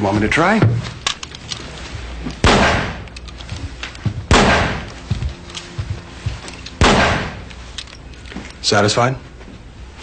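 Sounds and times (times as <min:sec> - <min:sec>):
loud handgun shots: 0:02.4 - 0:03.1, 0:04.3 - 0:04.9, 0:06.8 - 0:07.5.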